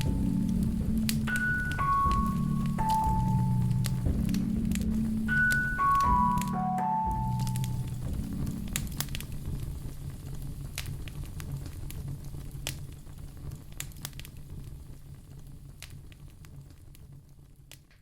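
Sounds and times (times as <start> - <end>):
soft melody: 0.0 - 9.6
low steady hum: 0.0 - 16.8
fire crackling and popping: 0.0 - 18.0.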